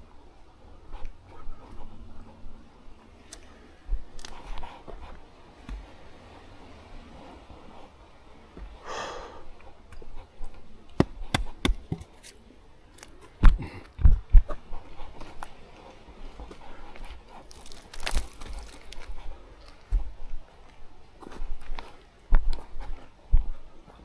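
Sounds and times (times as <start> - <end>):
footsteps on a trail: 9.9 - 12.4, 13.0 - 24.0
heavy thumps: 11.0 - 12.2
rustling: 15.2 - 20.1.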